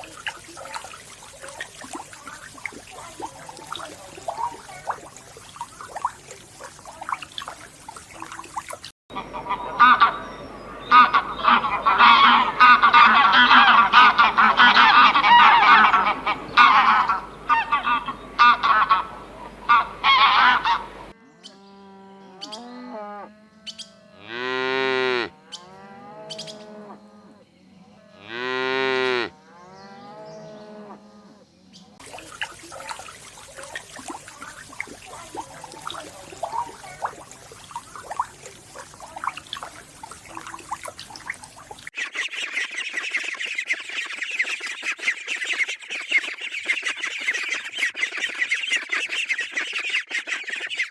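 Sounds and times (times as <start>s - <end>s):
geese honking: 9.1s - 21.6s
cow mooing: 21.2s - 31.4s.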